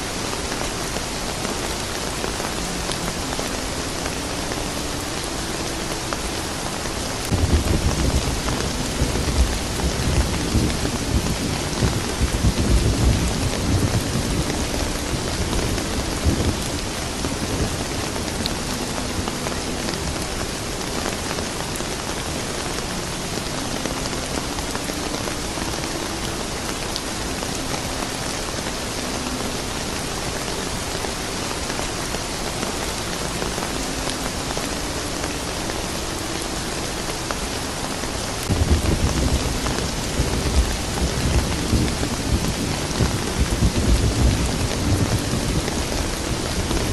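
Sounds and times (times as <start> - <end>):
steady rain falling: 0.0 - 46.9
low rolling thunder: 7.3 - 18.5, 38.5 - 46.9.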